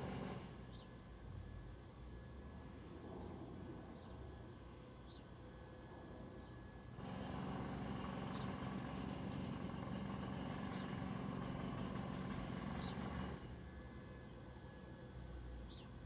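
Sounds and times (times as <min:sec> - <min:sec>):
mechanical hum: 0:00.0 - 0:16.0
faint bird chirps: 0:15.7 - 0:16.0.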